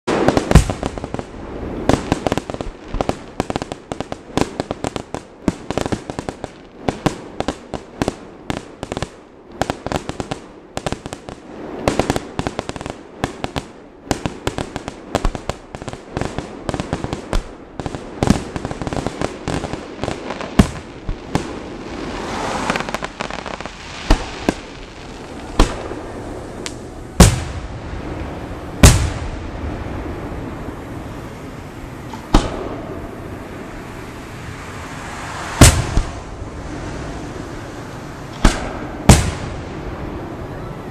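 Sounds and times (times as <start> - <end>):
firework crackling: 0.0 - 40.9
firework booms: 0.1 - 40.9
firework shell bursts and pops: 32.0 - 33.0, 35.2 - 36.3, 38.3 - 39.6.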